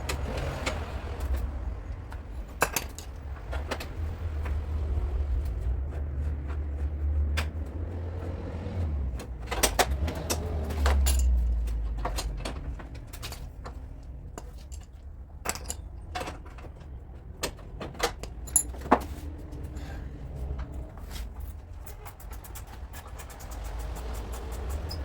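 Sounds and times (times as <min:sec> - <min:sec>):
metallic clinks and knocks: 0:00.1 - 0:04.0, 0:09.2 - 0:25.0.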